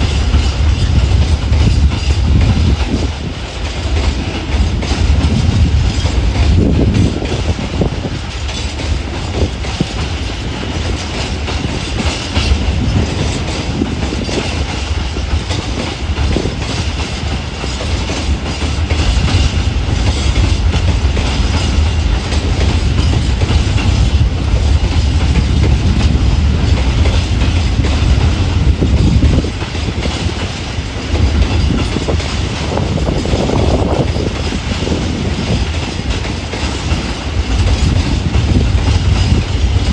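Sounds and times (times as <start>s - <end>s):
freight train rumbling past: 0.0s - 39.9s
train wheels knocking: 0.0s - 39.9s.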